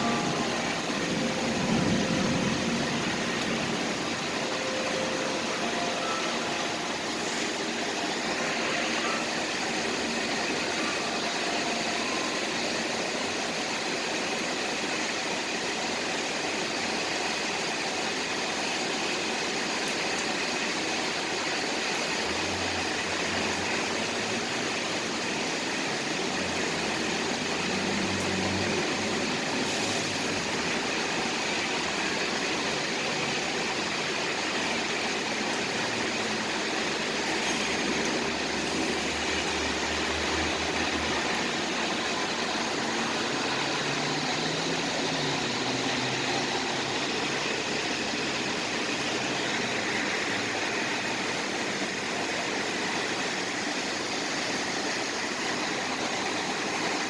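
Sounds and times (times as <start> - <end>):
passing vehicles rumbling: 0.0 - 8.5, 22.2 - 33.7, 35.4 - 51.8
city traffic noise: 0.0 - 57.0
rain hiss: 0.0 - 57.0.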